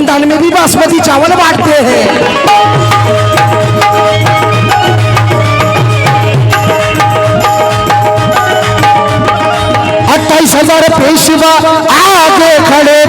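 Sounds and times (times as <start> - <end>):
held melody line: 0.5 - 12.9
hand drum beat: 1.4 - 11.1.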